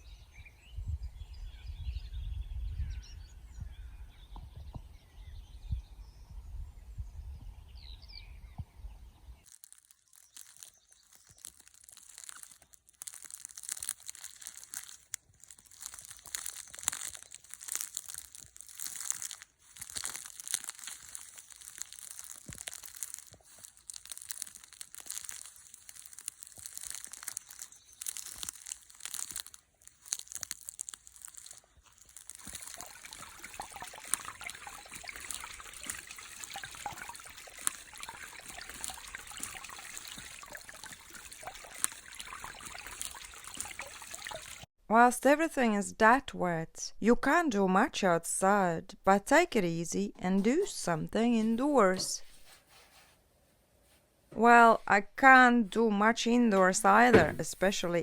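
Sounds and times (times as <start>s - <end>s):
wind rumble on microphone: 0.6s - 9.4s
splashing patter of water: 9.5s - 44.7s, 57.0s - 57.8s.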